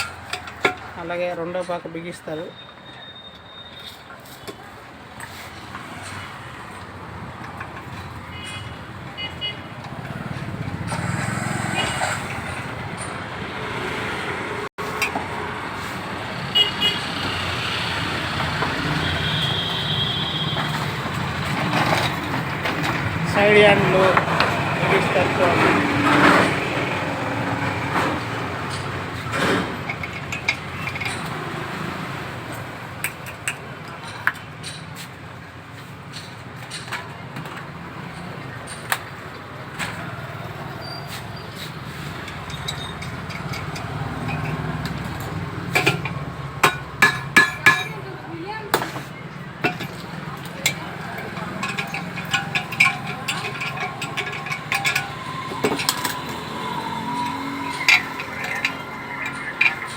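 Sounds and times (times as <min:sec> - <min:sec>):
tool clicks and taps on metal: 0:00.0 - 0:01.0, 0:49.6 - 0:56.2
street traffic noise: 0:00.0 - 0:59.9.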